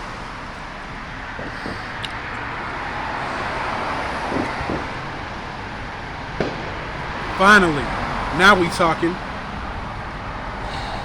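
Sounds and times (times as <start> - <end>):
faint thumps: 0.0 - 2.4
road traffic noise: 0.0 - 11.0
vehicle passing: 0.0 - 11.0.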